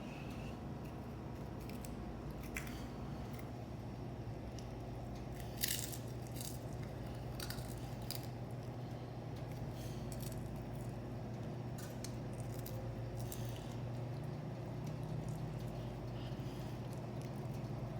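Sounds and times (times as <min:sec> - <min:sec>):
steady low hum: 0:00.0 - 0:17.9
crunchy chewing clicks: 0:04.5 - 0:17.9.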